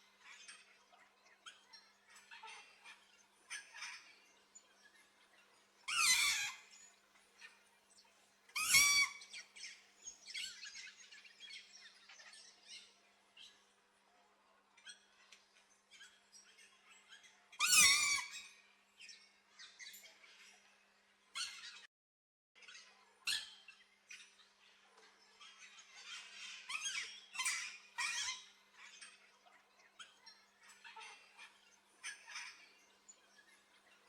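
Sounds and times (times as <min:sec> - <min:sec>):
parrot squawking: 0:05.9 - 0:06.6, 0:08.6 - 0:09.2
bird chirps and chatter: 0:08.6 - 0:13.0, 0:22.6 - 0:34.0.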